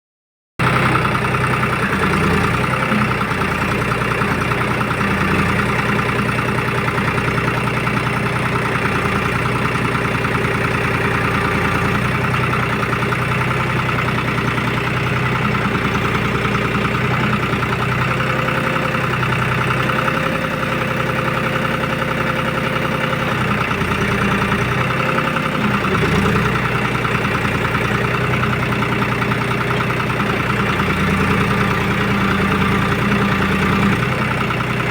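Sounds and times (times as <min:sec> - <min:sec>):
tractor diesel engine running: 0:00.6 - 0:34.9
backhoe digging soil: 0:00.8 - 0:34.9.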